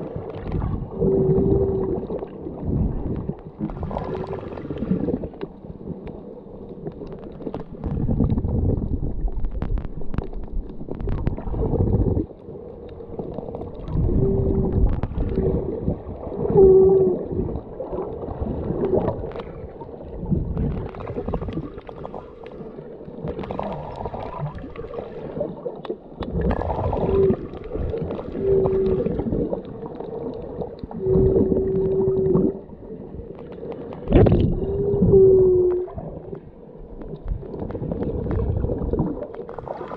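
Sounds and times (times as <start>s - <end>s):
muffled water rushing underwater: 0.0s - 39.9s
low hooting tones: 13.9s - 18.1s, 26.6s - 29.9s, 30.9s - 32.8s, 34.4s - 36.4s.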